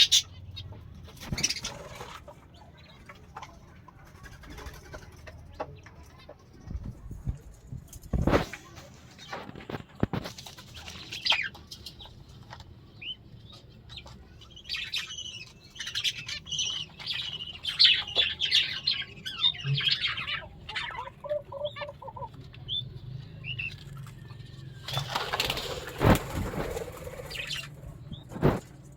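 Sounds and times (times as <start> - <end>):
budgerigars chattering and chirping: 0.0 - 3.6, 10.8 - 23.8, 26.7 - 28.6.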